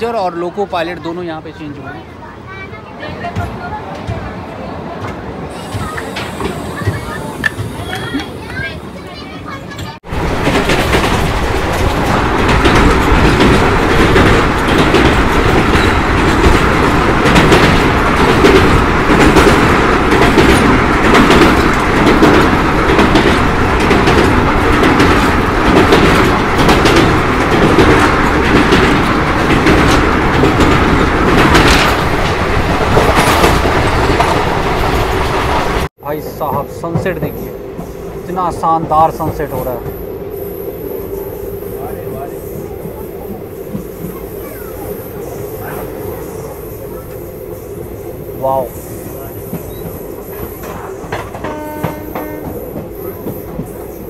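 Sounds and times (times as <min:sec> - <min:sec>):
train wheels rumbling: 0:02.4 - 0:54.0
train wheels clacking: 0:09.6 - 0:40.0, 0:49.0 - 0:54.0.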